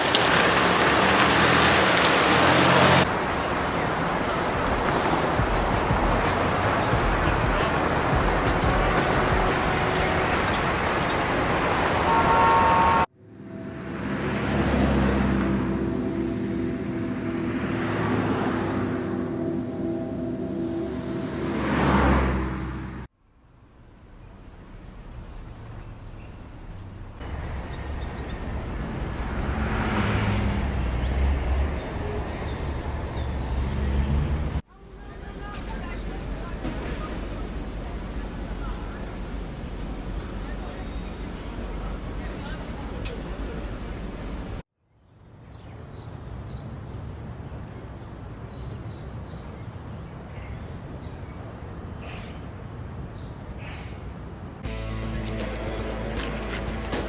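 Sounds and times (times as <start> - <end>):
vehicle passing: 0.0 - 34.6, 54.6 - 57.0
road traffic: 0.0 - 57.0
bird chirps: 25.3 - 28.7, 31.0 - 34.0.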